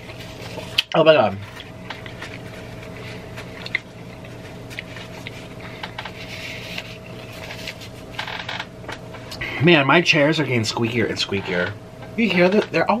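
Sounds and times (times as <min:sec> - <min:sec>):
paper napkin rustling: 0:00.0 - 0:08.2
faint steady hum: 0:00.0 - 0:13.0
chewing food: 0:01.6 - 0:05.5.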